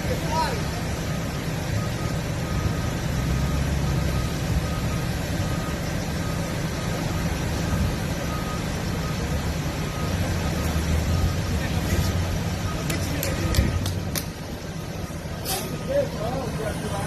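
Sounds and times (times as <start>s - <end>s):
diesel engine rumbling: 0.0s - 17.0s
faint high beep: 7.1s - 11.7s.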